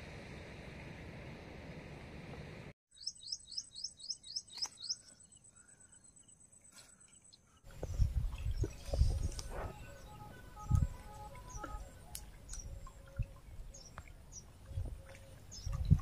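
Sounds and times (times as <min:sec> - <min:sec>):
bird singing rising notes: 0:07.7 - 0:16.0
thin steady high tone: 0:08.8 - 0:13.9.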